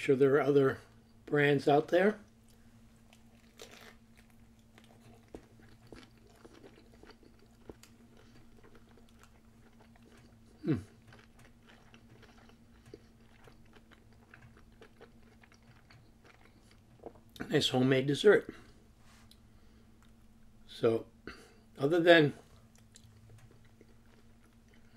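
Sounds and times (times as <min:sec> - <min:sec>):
faint steady hum: 0:00.0 - 0:24.9
person chewing: 0:02.3 - 0:17.5, 0:22.5 - 0:24.9.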